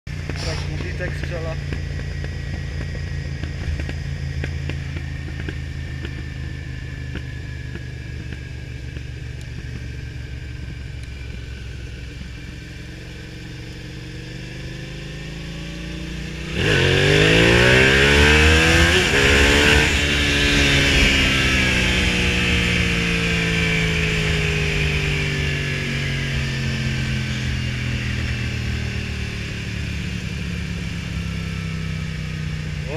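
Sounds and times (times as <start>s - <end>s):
exhaust backfire pops: 0.1s - 11.5s
motorcycle engine revving: 0.1s - 32.9s.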